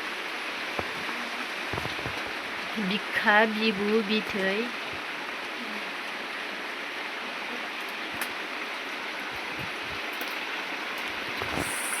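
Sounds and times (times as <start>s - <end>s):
steady hissing rushing noise: 0.0s - 3.6s, 11.2s - 12.0s.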